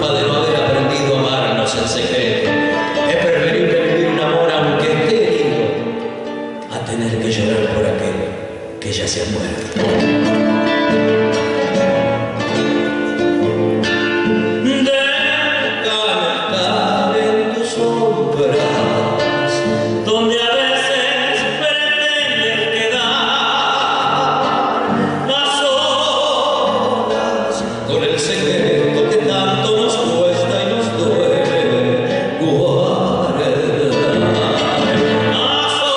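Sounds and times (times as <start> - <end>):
instrumental accompaniment: 9.6 - 35.9
person singing long notes: 14.3 - 35.9.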